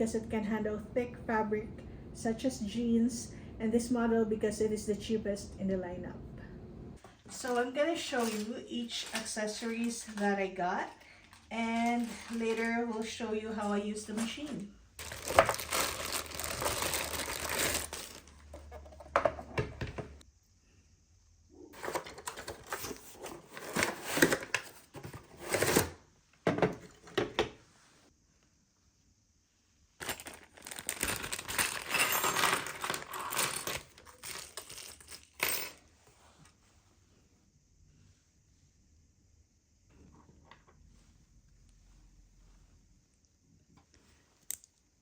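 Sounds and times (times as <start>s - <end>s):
plastic packaging crinkling: 11.4s - 12.8s, 14.1s - 18.6s, 30.0s - 34.8s.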